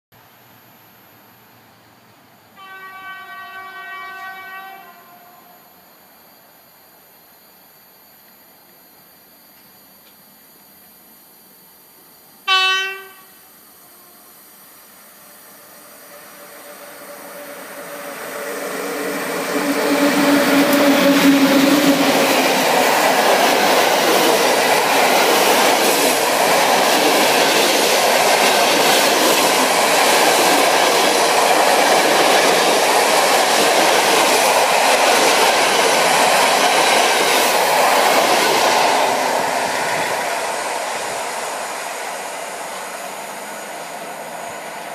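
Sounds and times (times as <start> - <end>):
passenger train passing at speed: 1.7 - 5.7, 12.4 - 44.9
train horn blast: 2.6 - 5.7, 12.4 - 14.2.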